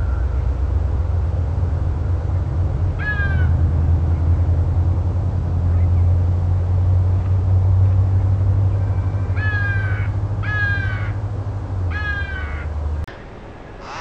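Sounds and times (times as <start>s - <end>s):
steady low hum: 0.0s - 14.0s
bird calling: 3.0s - 4.3s, 8.7s - 11.2s, 11.9s - 12.8s, 13.7s - 14.0s.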